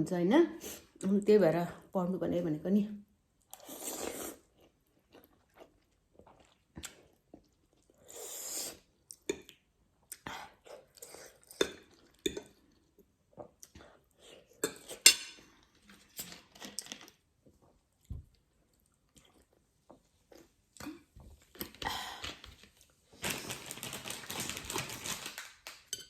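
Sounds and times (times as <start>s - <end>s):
chewing with wet mouth clicks: 17.6s - 21.0s.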